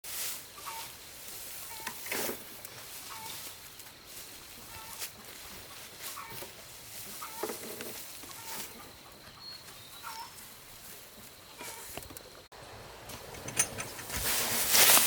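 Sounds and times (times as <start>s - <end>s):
chickens clucking: 0.5s - 12.4s.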